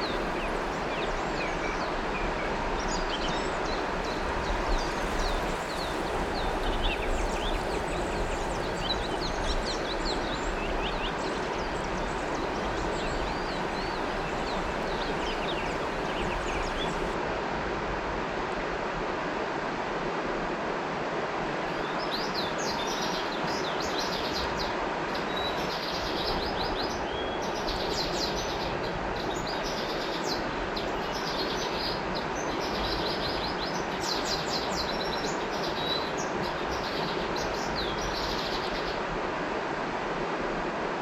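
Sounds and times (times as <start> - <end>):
birds chirping: 0.0 - 17.2
river water rushing: 0.0 - 41.0.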